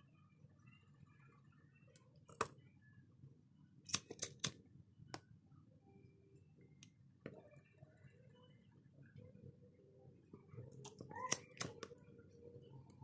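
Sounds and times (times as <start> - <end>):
small tools clicking and snapping: 3.9 - 4.6, 10.9 - 11.9.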